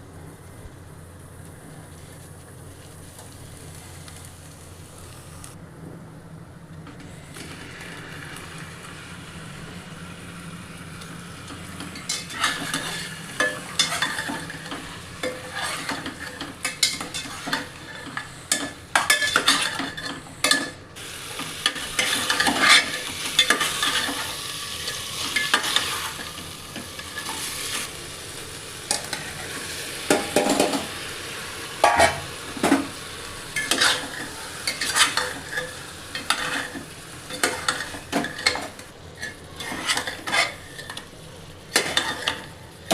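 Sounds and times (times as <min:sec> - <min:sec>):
food sizzling in a pot: 0:00.3 - 0:05.6, 0:07.0 - 0:42.9
spoon scraping and knocking pot: 0:11.8 - 0:20.7.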